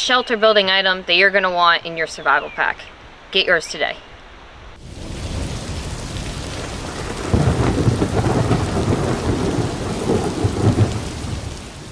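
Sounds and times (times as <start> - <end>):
steady rain: 0.0 - 11.9
low rolling thunder: 4.7 - 11.9.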